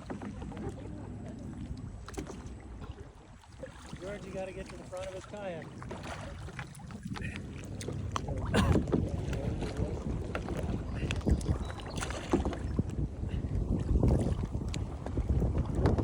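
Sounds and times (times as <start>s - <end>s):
water splashing around kayaks: 0.0s - 16.0s
wind rumble on microphone: 0.0s - 16.0s
knocks against kayak hulls: 14.0s - 16.0s.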